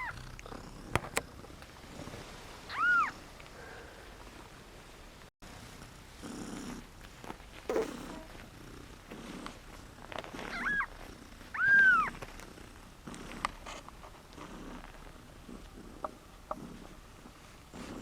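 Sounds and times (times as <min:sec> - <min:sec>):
cats purring: 0:00.0 - 0:18.0
kitten mewing: 0:11.6 - 0:12.2.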